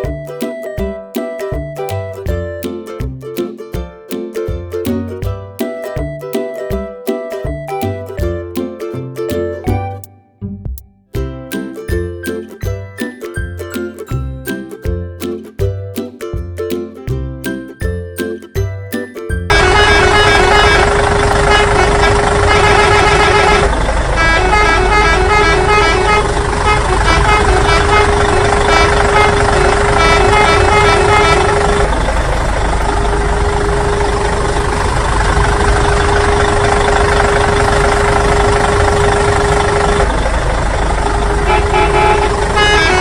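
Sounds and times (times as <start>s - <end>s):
low engine rumble: 0.0s - 43.0s
long horn-like tone: 19.5s - 31.9s, 41.4s - 43.0s.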